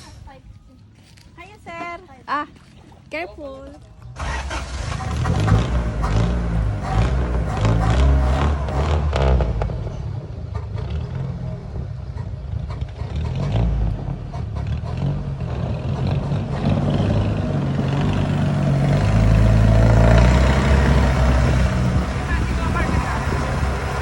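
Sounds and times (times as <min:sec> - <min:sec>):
boat engine droning: 0:04.0 - 0:24.0.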